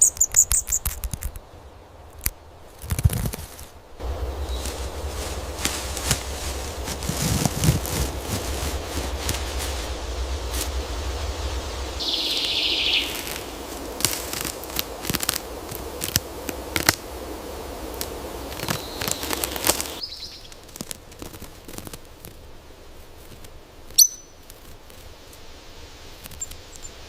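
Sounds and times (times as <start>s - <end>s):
sharp irregular clicks and crackles: 0.1s - 1.4s
high chirp: 11.6s - 14.5s.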